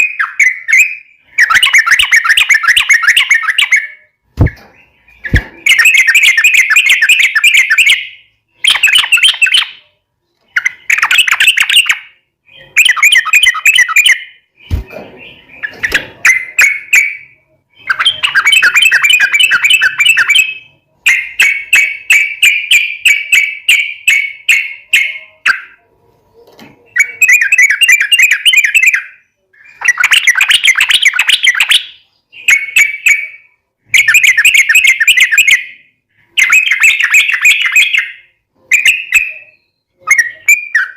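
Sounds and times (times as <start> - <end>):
bird singing bubbling phrases: 10.5 - 25.8.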